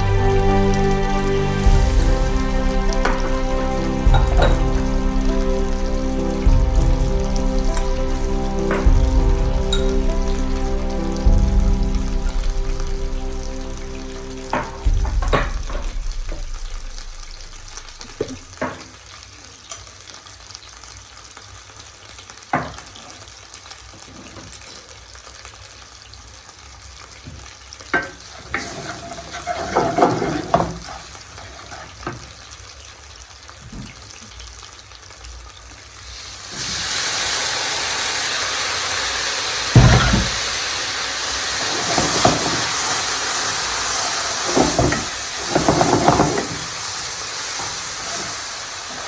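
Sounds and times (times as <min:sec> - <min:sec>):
food sizzling in a pan: 0:00.0 - 0:49.0
utensils clattering against cookware: 0:04.0 - 0:04.9, 0:09.7 - 0:10.0, 0:14.5 - 0:16.0, 0:28.0 - 0:32.2, 0:41.6 - 0:43.0, 0:44.4 - 0:46.8.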